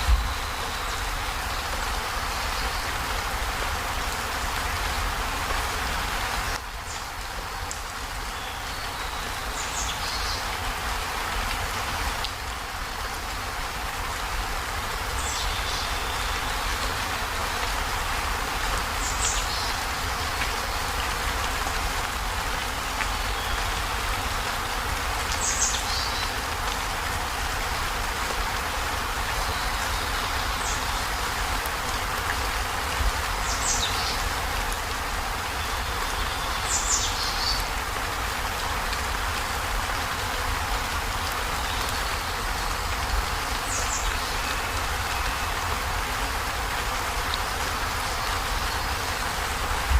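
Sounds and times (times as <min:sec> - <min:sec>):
heavy rain on a metal roof: 0:00.0 - 0:49.9.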